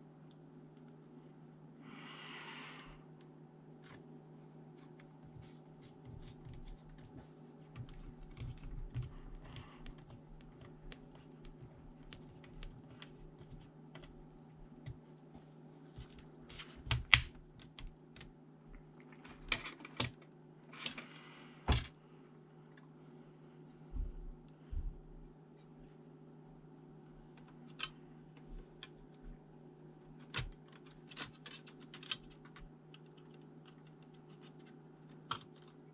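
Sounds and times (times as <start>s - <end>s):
steady low hum: 0.0s - 35.9s
plastic laptop parts clicking: 7.8s - 14.2s, 16.5s - 18.3s, 30.2s - 35.8s.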